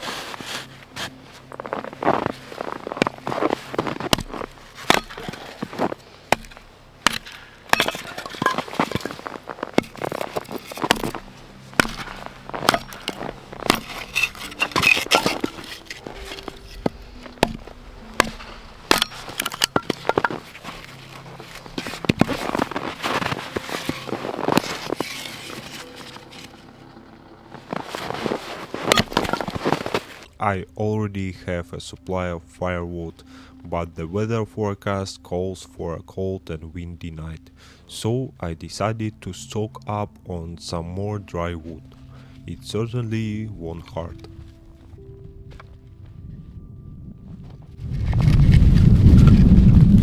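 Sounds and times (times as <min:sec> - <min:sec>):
dry wood cracking and snapping: 0:00.0 - 0:30.3, 0:47.8 - 0:50.0.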